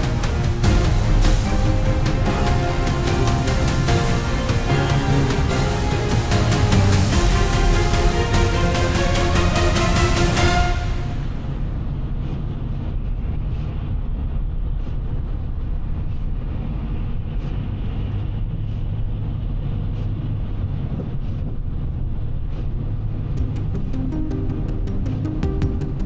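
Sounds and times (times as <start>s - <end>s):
tyres and engine rumble: 0.0s - 26.0s.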